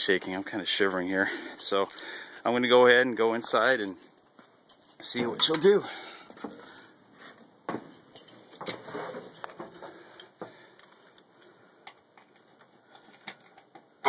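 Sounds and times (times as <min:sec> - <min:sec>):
rustling: 0:06.4 - 0:13.3
metallic keys jingling: 0:08.0 - 0:08.6.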